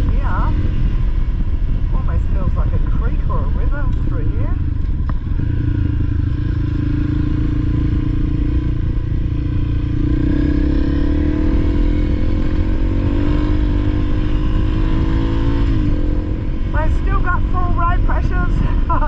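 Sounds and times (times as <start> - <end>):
low rumbling noise: 0.0 - 19.0
motorcycle engine running: 0.0 - 19.0.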